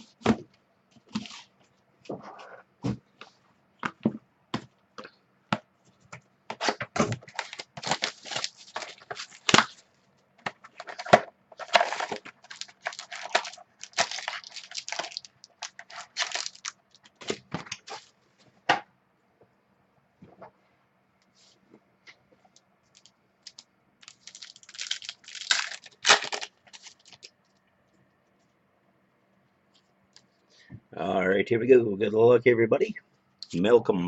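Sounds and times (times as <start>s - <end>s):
plastic wrapping crinkling and tearing: 6.6s - 9.9s, 10.6s - 18.1s, 22.9s - 27.3s.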